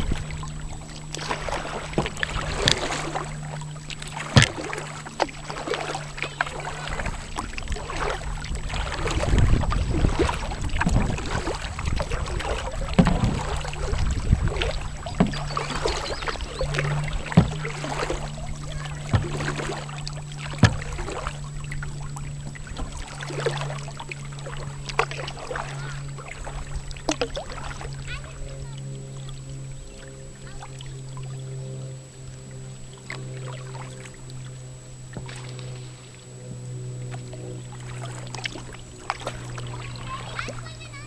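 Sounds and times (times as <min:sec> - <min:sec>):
paddle splashing through water: 0:00.0 - 0:41.0
sharp knocks: 0:13.0 - 0:18.2, 0:20.5 - 0:21.1.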